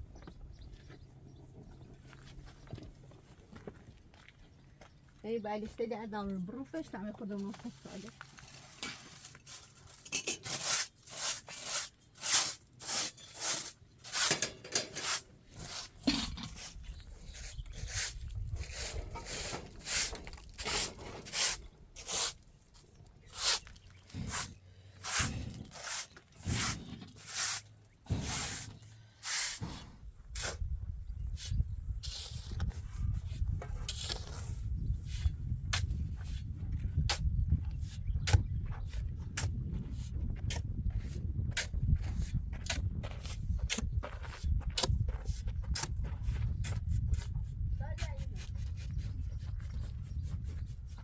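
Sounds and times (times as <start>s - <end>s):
hand tool rasping strokes: 9.1s - 22.4s, 23.3s - 30.6s.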